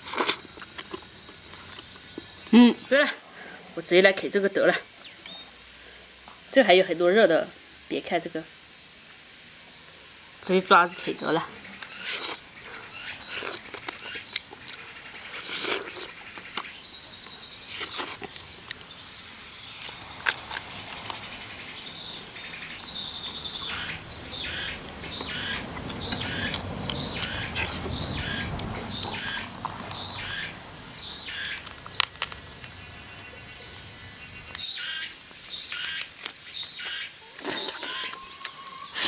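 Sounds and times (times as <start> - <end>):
wet chewing and lip smacking: 0.0 - 2.3, 13.2 - 16.7, 17.7 - 19.2, 23.2 - 30.8.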